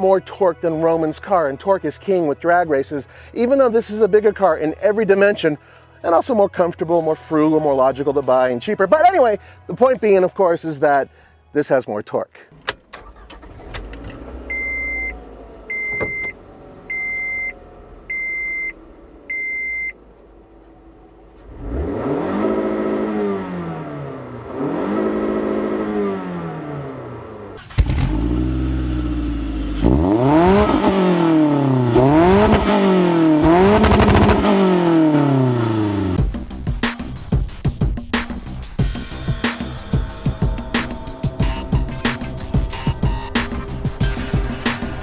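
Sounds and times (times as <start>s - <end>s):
short electronic beeps: 14.5s - 20.0s
car accelerating hard: 20.8s - 36.2s.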